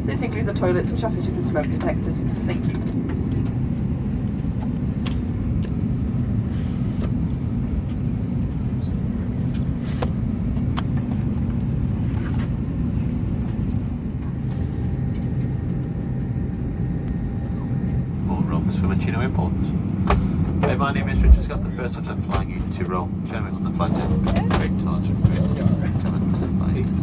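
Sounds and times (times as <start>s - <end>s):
aircraft cabin air-conditioning hum: 0.0s - 27.0s.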